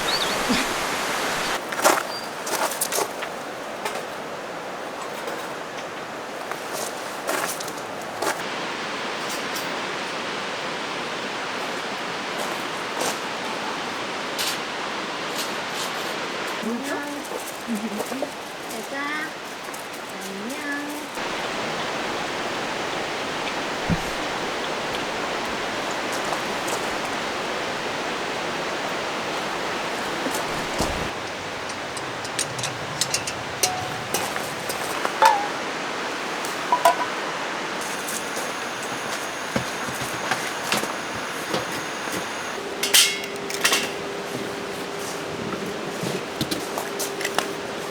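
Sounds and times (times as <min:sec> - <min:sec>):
mountain stream flowing: 0:00.0 - 0:16.6, 0:21.2 - 0:42.8.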